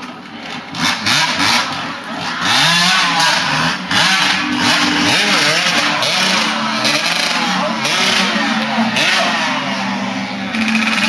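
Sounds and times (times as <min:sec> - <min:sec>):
dirt bike engine revving: 0:00.5 - 0:11.0.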